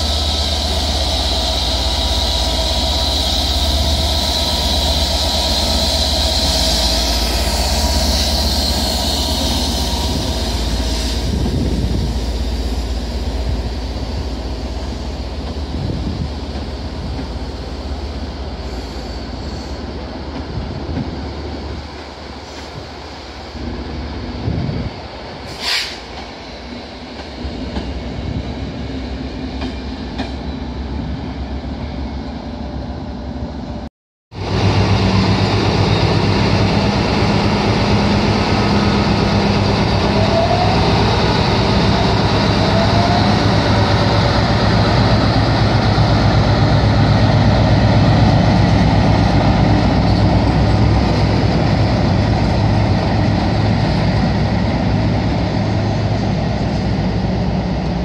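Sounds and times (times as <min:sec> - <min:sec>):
diesel locomotive engine drone: 0:00.0 - 0:58.0
passenger train rolling past: 0:00.0 - 0:58.0
brief hiss: 0:25.5 - 0:26.1.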